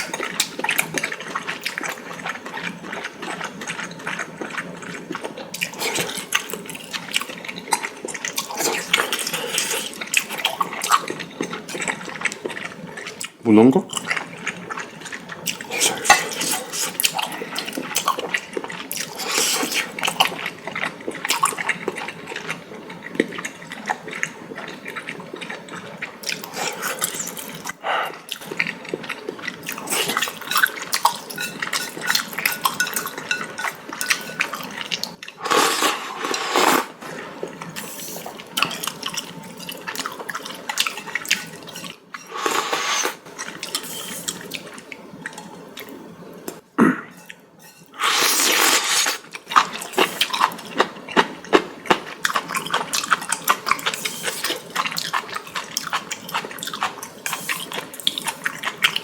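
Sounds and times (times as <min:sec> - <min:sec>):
person slurping noodles: 0:08.4 - 0:10.5, 0:15.5 - 0:17.8, 0:19.0 - 0:20.1, 0:35.4 - 0:38.5, 0:41.5 - 0:43.2, 0:48.0 - 0:50.3
wet chewing: 0:48.1 - 0:59.0.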